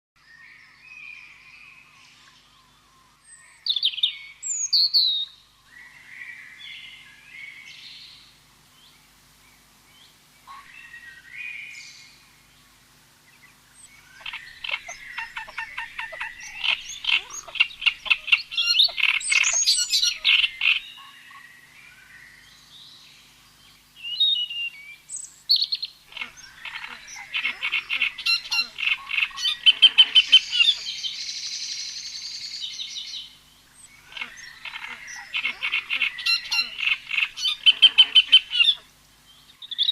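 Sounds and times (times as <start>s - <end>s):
rapid pulsing animal trills: 14.0s - 20.8s, 26.1s - 30.8s
animal chirps: 14.2s - 21.1s, 25.6s - 30.9s, 34.1s - 38.8s.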